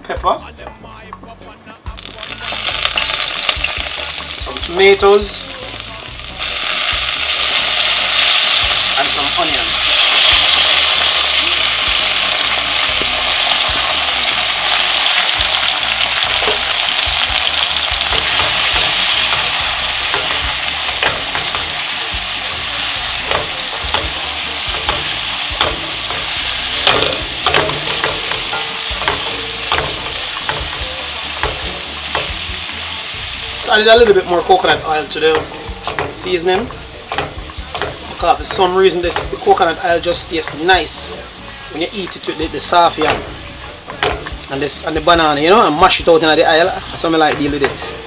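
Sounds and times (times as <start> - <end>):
vegetables sizzling in oil: 2.0 - 48.0
spoon tapping and scraping pan: 15.8 - 32.8, 34.0 - 41.4, 42.0 - 44.6, 46.5 - 48.0.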